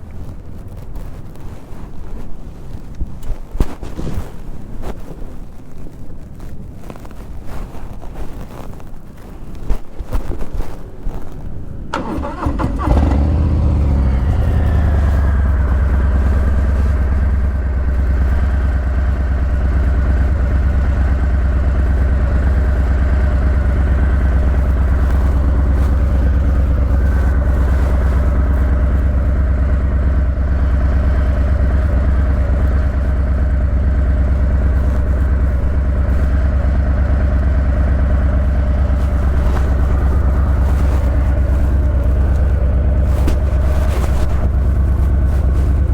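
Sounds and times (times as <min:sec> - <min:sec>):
motorcycle engine idling: 0:11.9 - 0:45.9.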